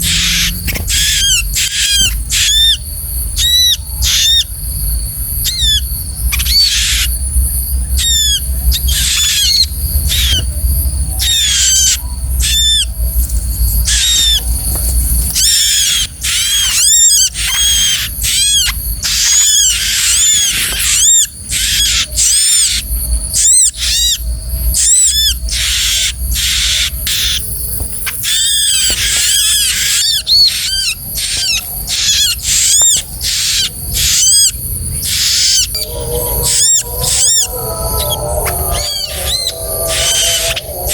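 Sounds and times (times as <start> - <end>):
bird shrill chirps: 35.2 - 40.9
low rumble: 35.6 - 40.9.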